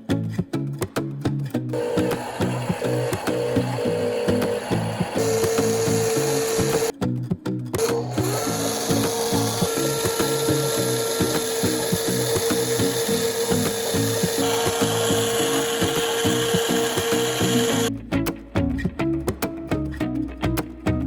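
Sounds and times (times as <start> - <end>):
background music: 0.0 - 21.0
toy electric motor whining: 1.8 - 6.9, 7.8 - 17.9.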